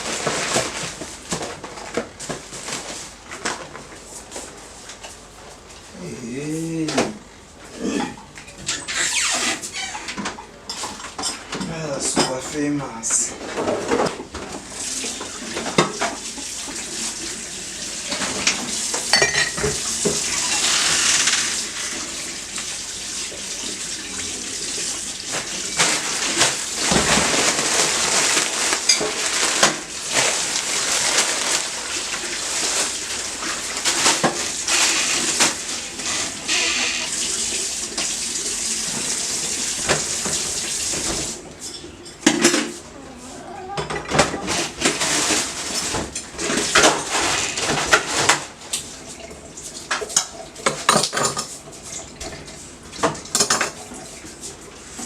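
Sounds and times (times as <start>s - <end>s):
tap water running into sink: 14.4s - 41.4s, 43.9s - 55.0s
dishes and cutlery clinking: 18.1s - 21.2s, 28.7s - 29.7s, 50.0s - 51.6s.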